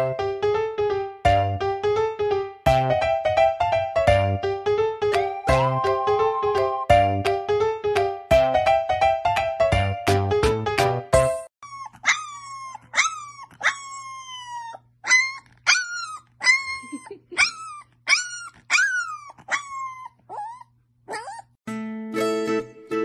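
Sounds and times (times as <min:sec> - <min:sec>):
puppy howling: 0:11.6 - 0:21.5.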